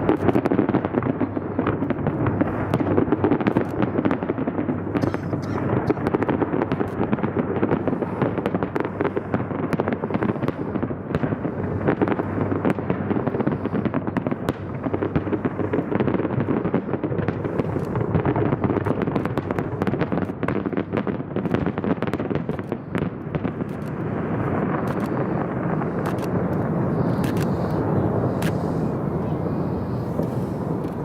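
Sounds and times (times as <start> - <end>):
firework bangs and crackle: 0.0 - 31.0.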